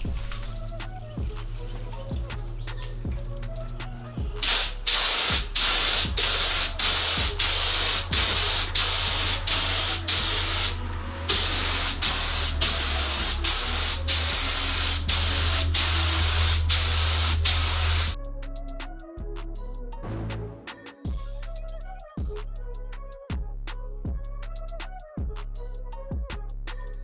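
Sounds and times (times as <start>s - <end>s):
spray gun hissing: 4.4s - 18.2s.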